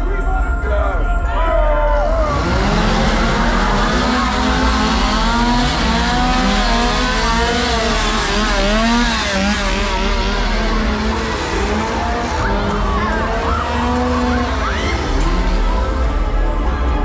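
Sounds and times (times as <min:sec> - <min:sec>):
chainsaws revving: 0:02.3 - 0:16.0.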